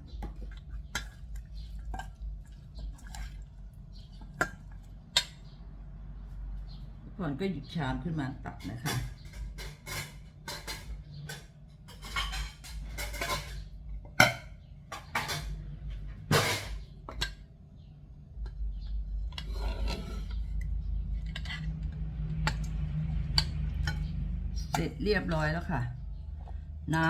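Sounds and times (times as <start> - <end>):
spoon clinking and scraping dishes: 0.0 - 5.6, 8.5 - 15.6, 16.3 - 17.4, 18.4 - 25.5
low steady hum: 0.0 - 27.0.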